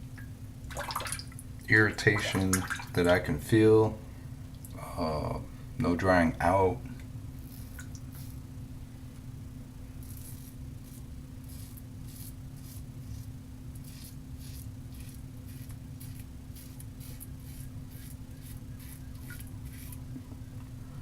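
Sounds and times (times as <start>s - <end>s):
steady low hum: 0.0s - 21.0s
razor scraping stubble: 7.4s - 8.4s, 10.0s - 20.1s.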